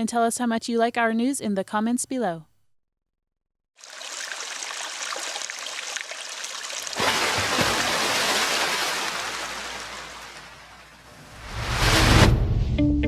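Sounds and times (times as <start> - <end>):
rushing water-like noise: 3.8 - 12.0.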